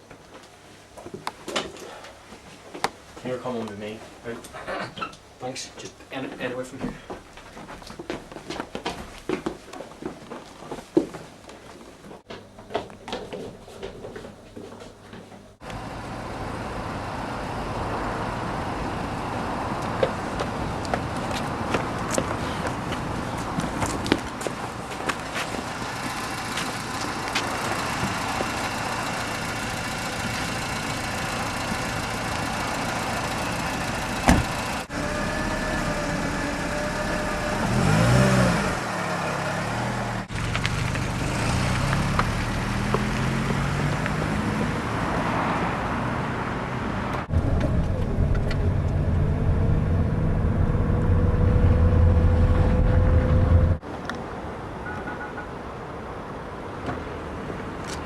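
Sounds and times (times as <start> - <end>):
car engine revving: 15.6 - 24.2, 25.1 - 53.8.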